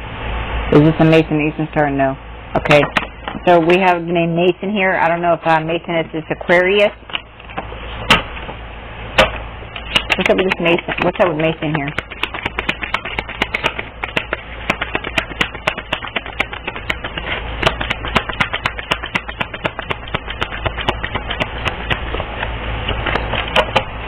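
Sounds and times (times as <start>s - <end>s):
steady low hum: 0.0s - 24.0s
rapid light tapping and clicking: 9.8s - 23.9s.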